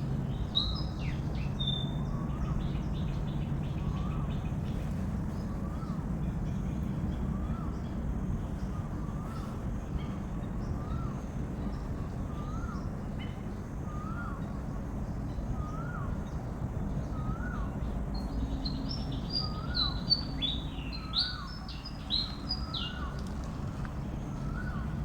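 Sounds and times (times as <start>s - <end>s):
bird calling: 18.4s - 23.6s.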